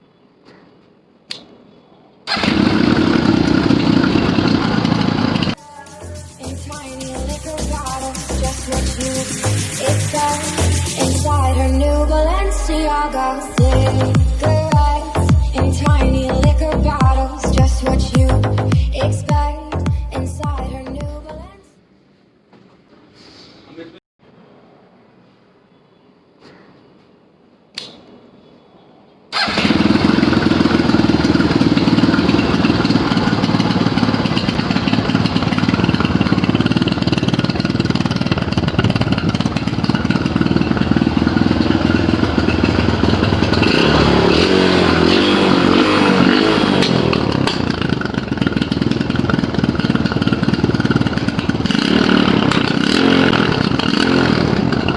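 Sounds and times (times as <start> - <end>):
click: 1.3 - 1.5, 27.7 - 28.0
motorcycle engine running: 2.3 - 5.6, 6.4 - 11.6, 13.2 - 21.2, 29.4 - 54.9.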